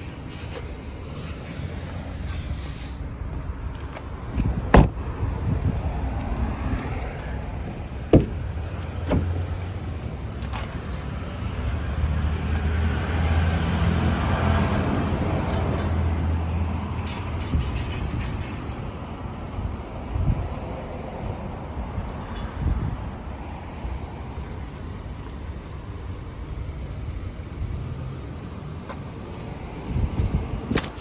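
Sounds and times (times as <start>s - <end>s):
sharp knocks: 8.1s - 8.4s.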